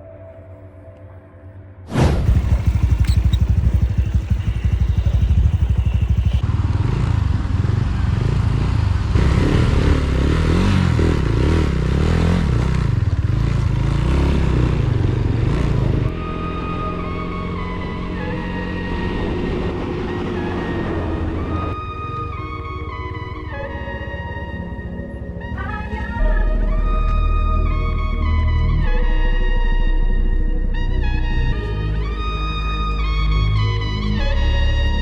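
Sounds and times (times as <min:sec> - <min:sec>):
motorcycle engine revving: 0:02.2 - 0:21.8.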